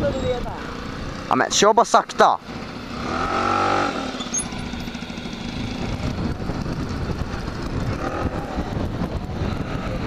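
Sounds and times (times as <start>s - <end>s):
wind rumble on microphone: 0.0s - 1.2s, 4.5s - 10.0s
moped engine running: 0.0s - 10.0s.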